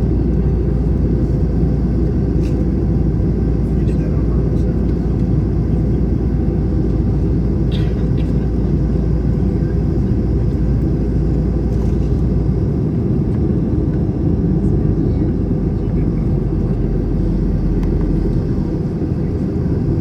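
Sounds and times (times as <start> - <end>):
jet engine cabin rumble: 0.0 - 20.0.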